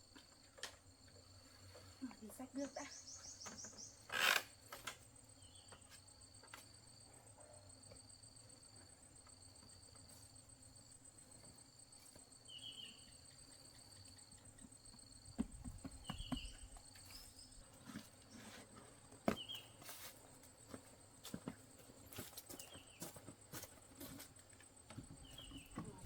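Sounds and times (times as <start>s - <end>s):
insects trilling: 0.0s - 26.0s
light knocks and footfalls: 14.8s - 26.0s.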